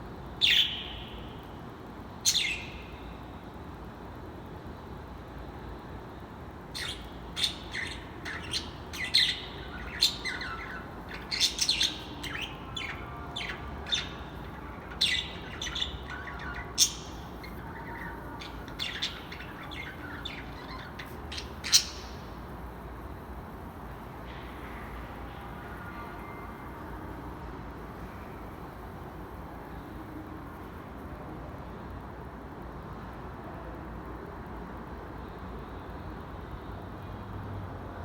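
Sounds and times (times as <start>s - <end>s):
steady low background noise: 0.0s - 38.0s
birds chirping: 0.3s - 1.4s, 2.2s - 3.4s, 6.7s - 23.5s.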